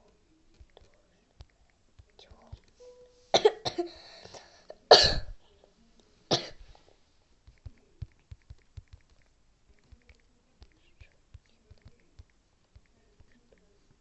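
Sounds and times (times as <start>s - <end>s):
person coughing: 3.4s - 4.0s, 4.9s - 5.4s, 6.3s - 6.6s.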